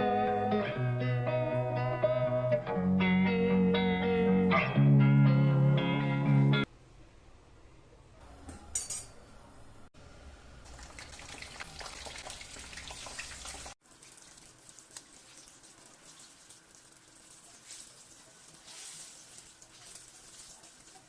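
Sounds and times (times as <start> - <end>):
dishes clinking: 8.5 - 9.2.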